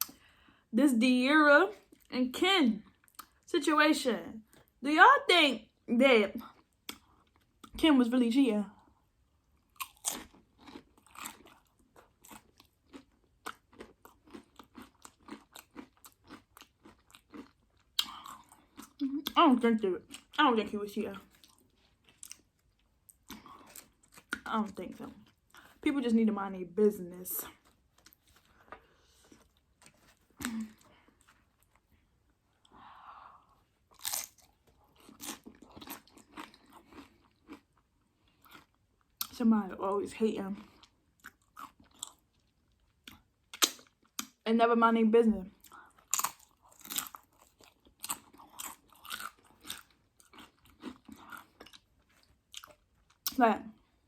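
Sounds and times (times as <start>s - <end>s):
chewing crunchy tortilla chips: 6.4s - 7.8s, 8.8s - 20.4s, 21.2s - 25.8s, 27.5s - 32.8s, 33.5s - 39.4s, 40.5s - 44.4s, 45.5s - 54.0s.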